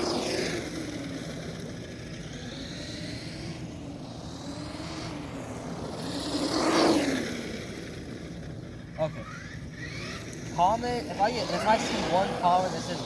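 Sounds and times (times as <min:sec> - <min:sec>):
electric toy truck motor whining: 0:09.1 - 0:13.0.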